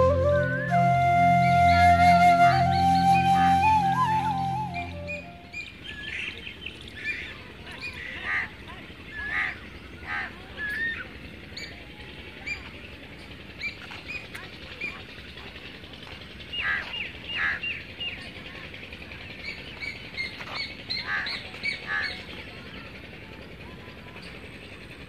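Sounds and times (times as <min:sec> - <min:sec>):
birds chirping and calling: 0:19.3 - 0:22.5.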